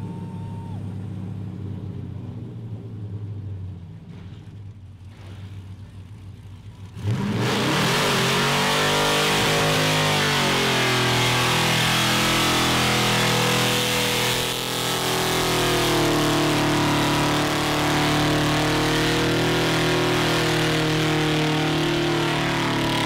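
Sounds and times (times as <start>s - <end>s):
car engine revving: 5.0s - 23.0s.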